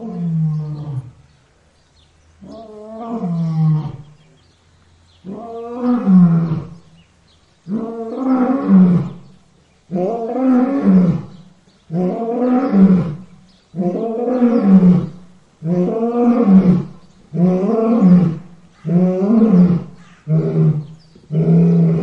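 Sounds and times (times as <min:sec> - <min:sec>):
lion roaring: 0:09.9 - 0:22.0.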